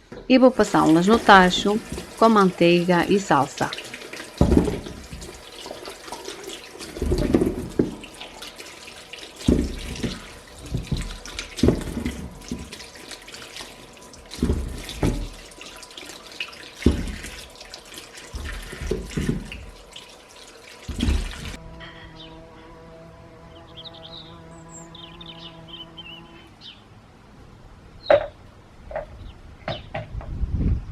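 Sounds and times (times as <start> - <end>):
water splashing: 0.4 - 21.7
tap water running into sink: 0.6 - 21.6.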